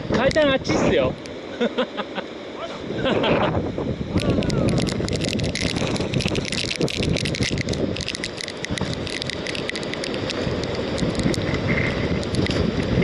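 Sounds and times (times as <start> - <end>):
wind buffeting microphone: 0.0 - 1.5, 2.7 - 13.0
small sharp clicks and crackles: 0.1 - 0.6, 4.2 - 13.0.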